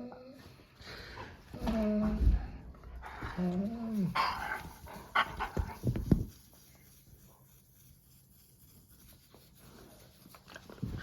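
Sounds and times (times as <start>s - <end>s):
dog breathing and huffing: 2.4s - 6.5s.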